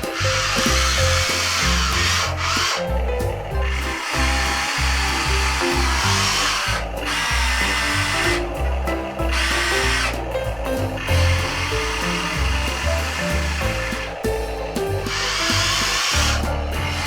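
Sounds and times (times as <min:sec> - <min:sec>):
music with stepping bass: 0:00.0 - 0:17.0
electric motors whirring: 0:04.0 - 0:08.4.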